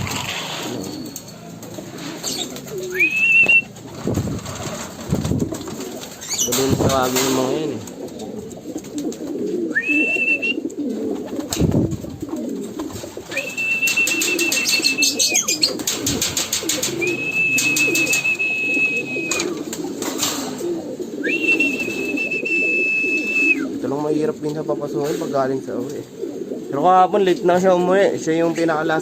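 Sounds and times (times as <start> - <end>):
pigeons cooing: 0.0 - 29.0
long high whistle: 9.8 - 10.6, 13.3 - 15.1, 17.1 - 19.4, 21.3 - 23.6.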